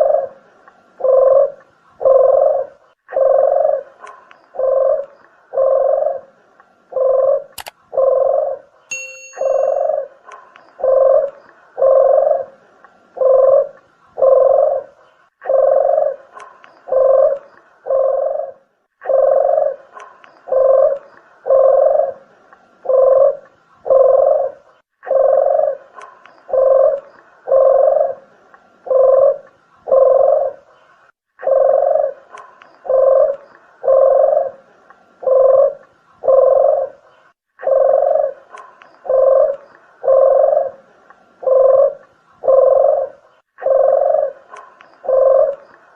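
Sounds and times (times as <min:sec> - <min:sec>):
dove cooing: 0:00.0 - 0:08.8, 0:09.5 - 0:30.7, 0:31.4 - 0:45.9.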